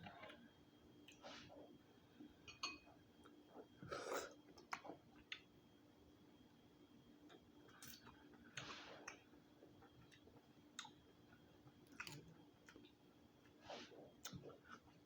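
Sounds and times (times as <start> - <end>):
faint steady hum: 0.0 - 15.0
chewing with sharp clicks: 7.3 - 11.0, 11.8 - 13.0.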